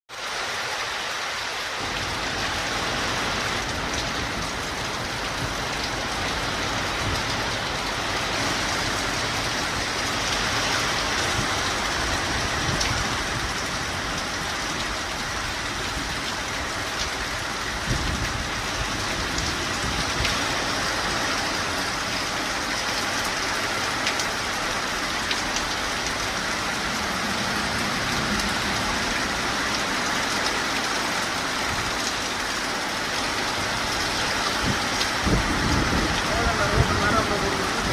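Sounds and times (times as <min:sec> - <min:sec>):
wind: 0:00.1 - 0:37.9
heavy rain hissing: 0:00.2 - 0:37.9
low rumble: 0:26.2 - 0:30.4.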